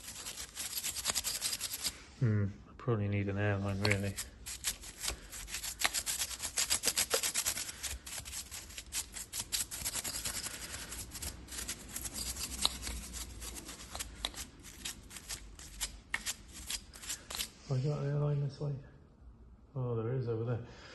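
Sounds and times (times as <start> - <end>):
stiff brush scrubbing: 0.0 - 2.1, 3.6 - 17.6.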